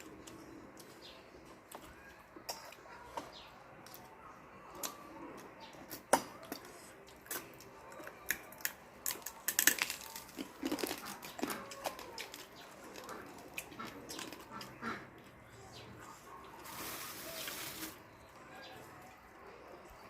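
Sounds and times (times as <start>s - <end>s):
person eating with crunching: 4.7s - 15.4s.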